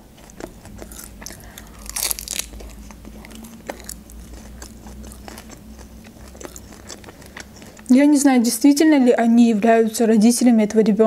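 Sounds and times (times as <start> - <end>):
chewing with wet mouth clicks: 0.0 - 8.0
crisp crunching of leaves: 1.6 - 2.9.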